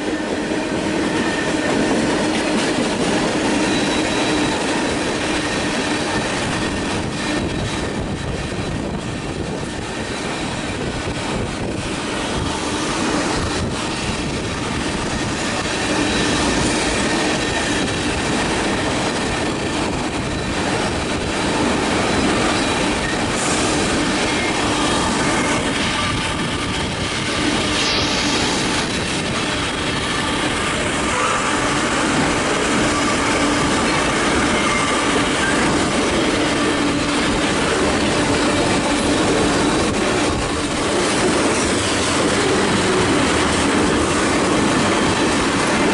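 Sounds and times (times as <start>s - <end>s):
train rumbling on track: 0.0s - 45.9s
wheel squeal: 3.5s - 8.7s, 32.8s - 37.2s.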